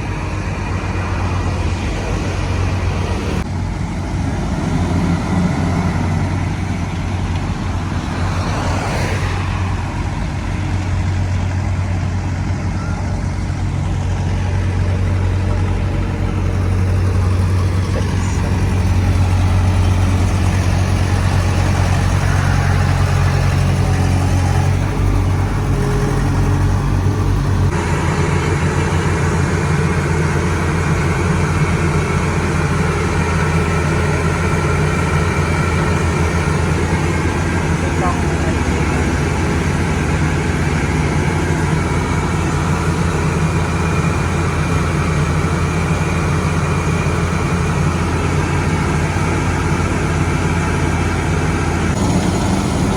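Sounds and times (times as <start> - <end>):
heavy machinery engine humming: 0.0 - 52.9.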